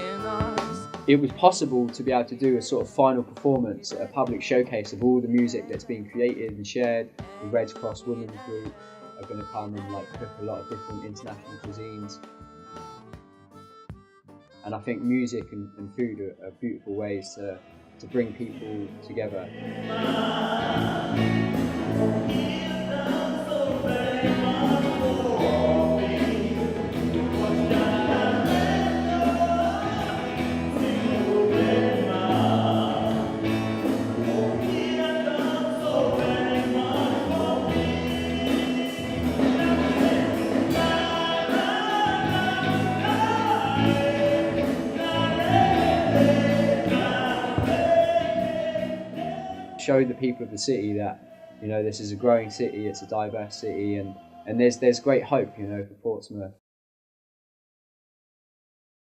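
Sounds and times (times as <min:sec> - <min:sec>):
band with bass and percussion: 0:00.0 - 0:01.2, 0:19.6 - 0:49.6
group of voices singing: 0:00.0 - 0:10.0, 0:17.0 - 0:55.6.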